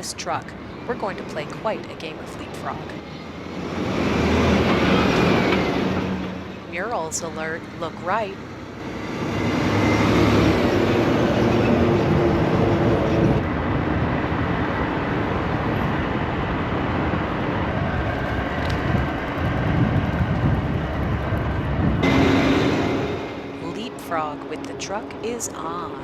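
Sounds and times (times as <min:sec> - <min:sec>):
steady engine hum: 0:00.0 - 0:26.0
traffic rumble: 0:00.0 - 0:26.0
wind rush: 0:08.7 - 0:26.0.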